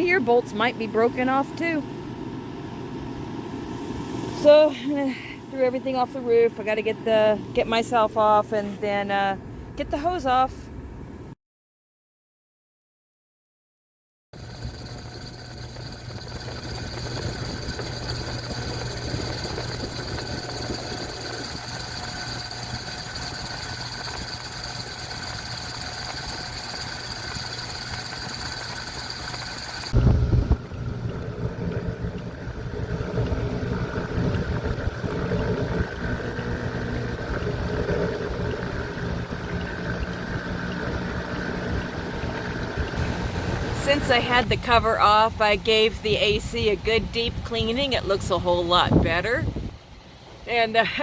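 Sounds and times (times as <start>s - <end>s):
motor humming: 14.4s - 44.8s.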